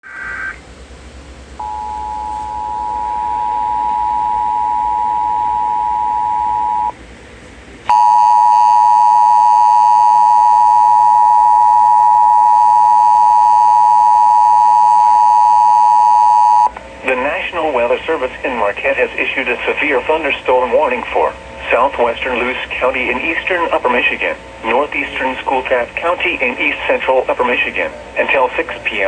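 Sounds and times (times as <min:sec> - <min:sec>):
harsh steady alert tone: 0:07.9 - 0:16.7.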